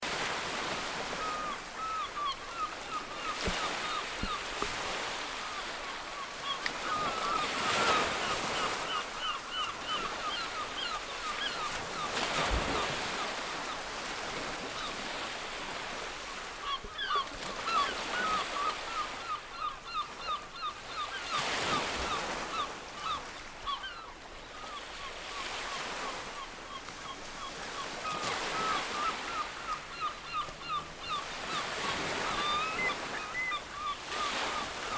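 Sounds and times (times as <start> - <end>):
flock of birds calling: 27.4 - 34.9.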